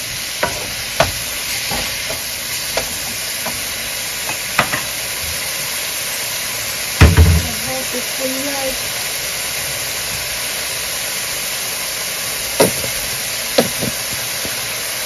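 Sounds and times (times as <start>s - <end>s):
food sizzling in a pan: 0.0s - 15.0s
wooden spoon knocking a pan: 0.4s - 5.0s, 7.0s - 7.6s.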